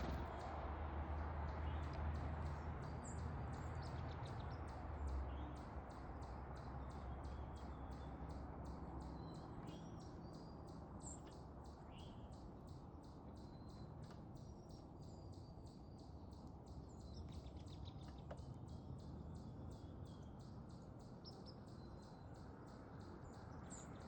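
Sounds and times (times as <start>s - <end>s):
low steady rumble: 0.0s - 3.2s
songbirds chirping: 0.0s - 24.0s.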